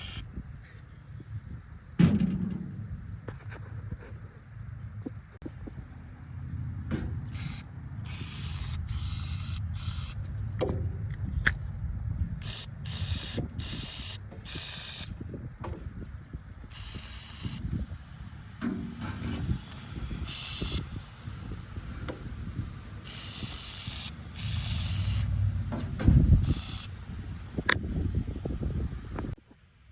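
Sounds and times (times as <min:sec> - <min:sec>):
air blowgun hissing blasts: 0:00.0 - 0:00.3, 0:07.2 - 0:10.8, 0:12.4 - 0:15.2, 0:16.7 - 0:17.8, 0:19.0 - 0:22.4, 0:23.0 - 0:27.0
steady low rumble: 0:00.0 - 0:29.4.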